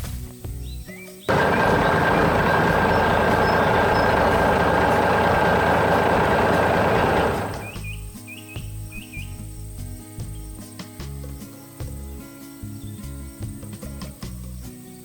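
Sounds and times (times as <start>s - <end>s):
loud rushing hiss: 1.3s - 7.8s
faint whistle tone: 1.3s - 8.0s.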